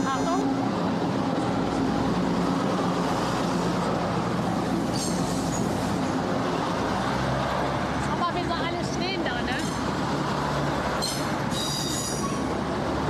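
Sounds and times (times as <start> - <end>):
diesel engine drone: 0.0 - 13.0
wheels rumbling on rails: 0.0 - 13.0.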